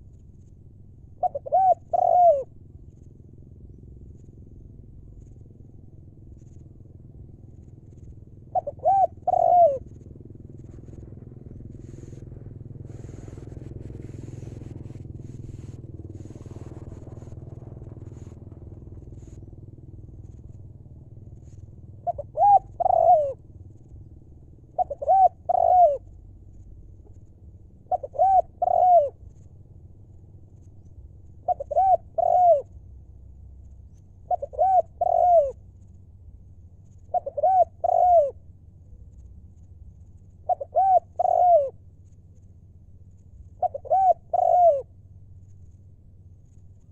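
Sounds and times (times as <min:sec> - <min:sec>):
dove cooing: 0:01.1 - 0:03.0, 0:04.0 - 0:29.5, 0:30.6 - 0:35.9, 0:37.0 - 0:39.3, 0:40.1 - 0:41.9, 0:43.3 - 0:45.0
low rumble: 0:09.8 - 0:22.1.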